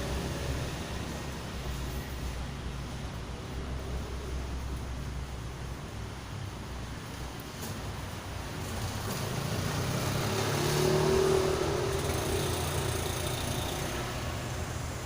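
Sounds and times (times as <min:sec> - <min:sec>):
vehicle engine passing by: 0:08.6 - 0:15.0.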